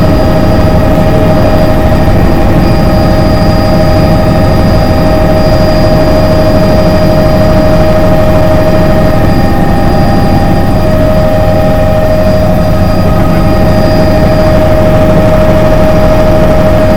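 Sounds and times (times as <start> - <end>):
helicopter taking off: 0.0 - 16.9.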